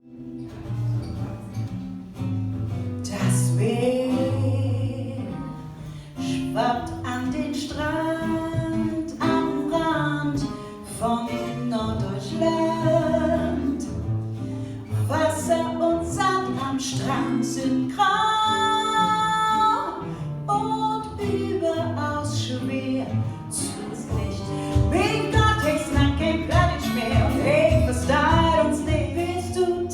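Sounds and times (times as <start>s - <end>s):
plucked guitar notes: 20.0s - 29.9s
person singing: 20.6s - 29.9s.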